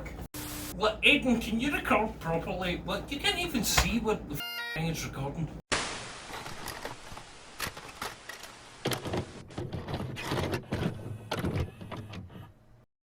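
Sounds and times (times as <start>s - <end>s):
dull thumps and knocks: 8.8s - 12.4s.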